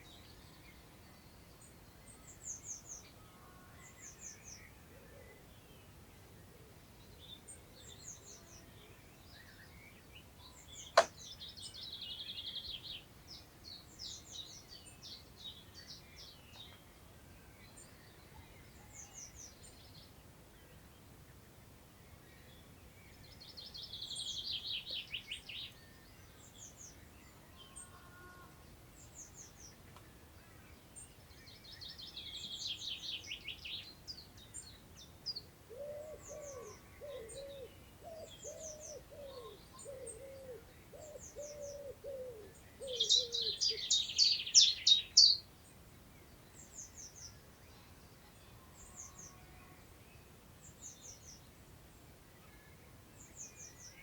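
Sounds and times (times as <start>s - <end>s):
lower-pitched bird call: 35.7s - 45.4s.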